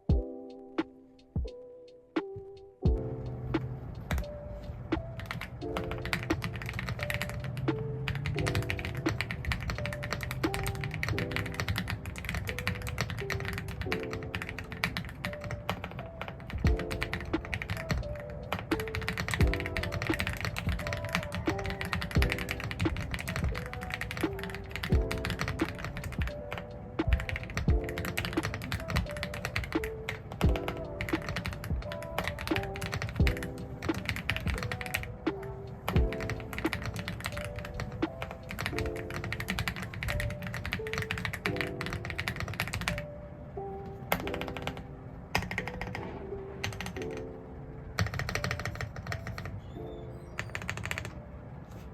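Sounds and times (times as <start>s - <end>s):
background music: 0.0s - 51.9s
mechanical keyboard typing: 5.1s - 43.1s, 44.1s - 47.3s, 48.0s - 49.6s, 50.3s - 51.2s.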